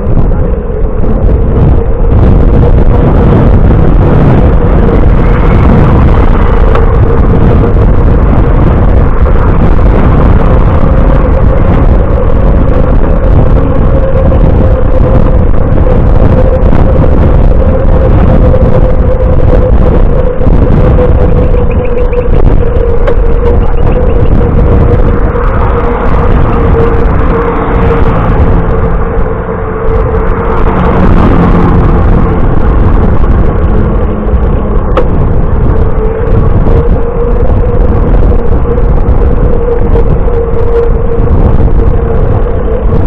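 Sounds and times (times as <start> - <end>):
bicycle road rumble: 0.0 - 43.0
mid-pitched hum: 0.0 - 43.0
wind on microphone: 0.0 - 43.0.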